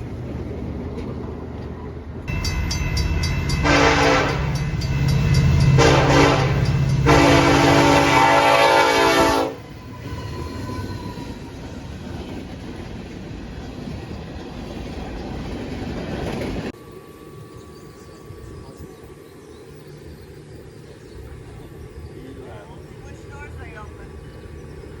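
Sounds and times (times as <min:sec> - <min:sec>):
train running: 0:00.0 - 0:25.0
train horn: 0:03.4 - 0:11.5.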